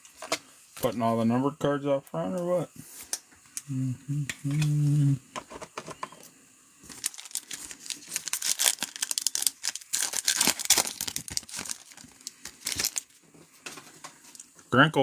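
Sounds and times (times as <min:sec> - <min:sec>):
foil wrapper tearing and crinkling: 0:06.8 - 0:13.2.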